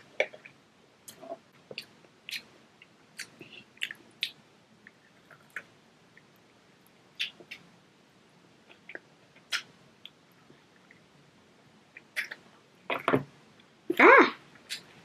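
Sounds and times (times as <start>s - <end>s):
child chewing with lip smacks: 0.1s - 6.5s, 8.6s - 11.0s.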